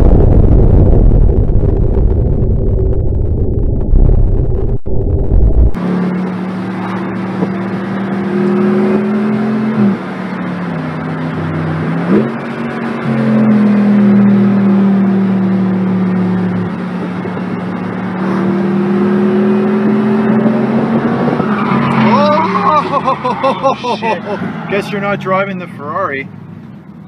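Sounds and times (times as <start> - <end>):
car engine revving high: 4.9 - 25.2.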